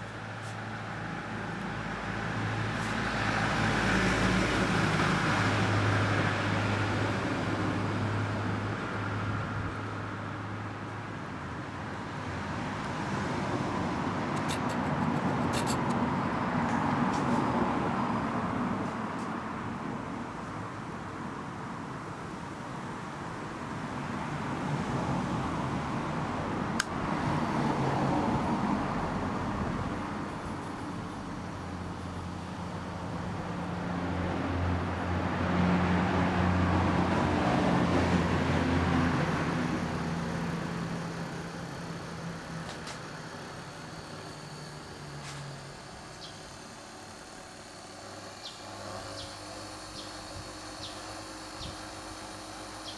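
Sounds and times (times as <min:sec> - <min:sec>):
disc sander motor humming: 0:10.7 - 0:17.6, 0:37.0 - 0:52.9
sanding noise: 0:14.3 - 0:16.0, 0:38.8 - 0:52.9
sharp click: 0:26.8 - 0:27.0.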